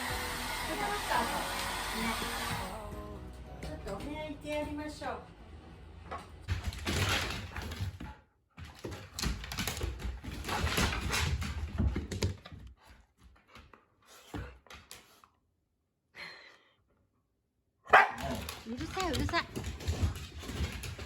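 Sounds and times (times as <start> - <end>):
dog claws clicking on hard floor: 6.5 - 15.3, 18.2 - 21.0.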